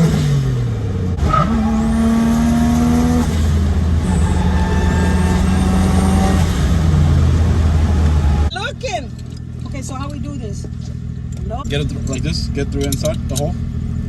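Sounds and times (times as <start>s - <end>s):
turbocharged car engine revving: 0.0s - 10.4s.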